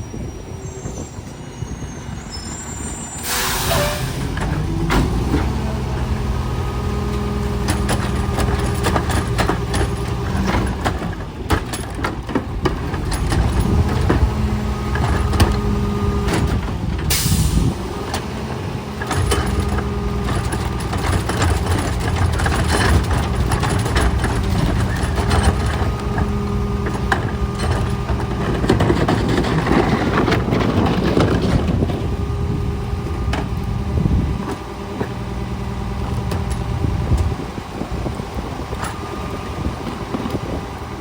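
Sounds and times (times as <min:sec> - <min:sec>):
air brake hiss: 0:00.8 - 0:04.4, 0:17.1 - 0:17.7
truck engine running: 0:03.3 - 0:41.0.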